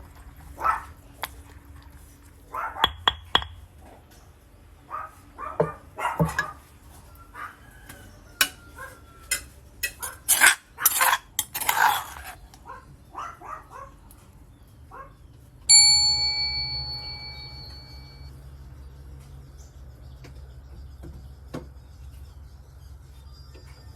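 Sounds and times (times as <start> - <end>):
dishes and utensils clinking: 5.6 - 6.6, 9.2 - 12.4
metallic bell-like ding: 15.7 - 18.3.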